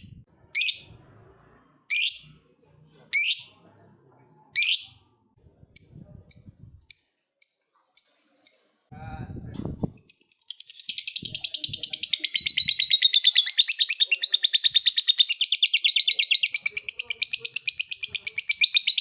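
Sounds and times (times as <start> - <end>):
bird high chirps: 0.0 - 0.9, 1.9 - 2.3, 3.2 - 3.6, 4.6 - 5.0, 5.8 - 8.7, 9.8 - 19.0.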